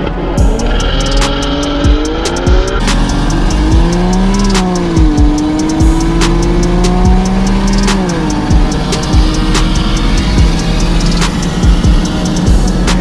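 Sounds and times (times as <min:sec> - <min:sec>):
car engine accelerating hard: 0:00.0 - 0:13.0
electronic music with kick drum: 0:00.0 - 0:13.0.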